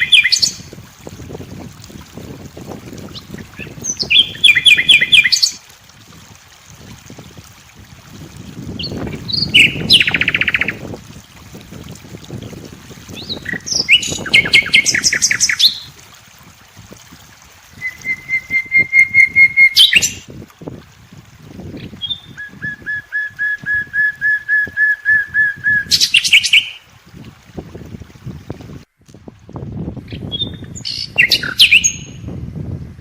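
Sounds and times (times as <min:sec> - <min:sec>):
songbird whistling song: 0:00.0 - 0:00.6, 0:03.2 - 0:05.6, 0:08.8 - 0:10.8, 0:13.2 - 0:15.9, 0:17.8 - 0:20.2, 0:21.8 - 0:26.8, 0:30.1 - 0:32.2.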